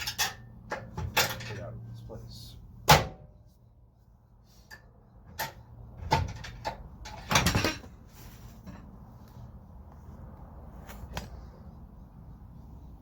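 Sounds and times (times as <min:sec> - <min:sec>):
metal parts knocking and clunking: 0:00.0 - 0:01.7, 0:04.7 - 0:08.0.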